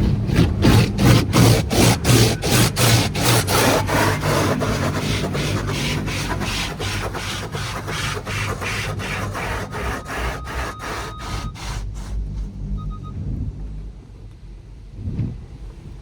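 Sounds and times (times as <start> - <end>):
car wash brushes slapping: 0.0 - 12.3.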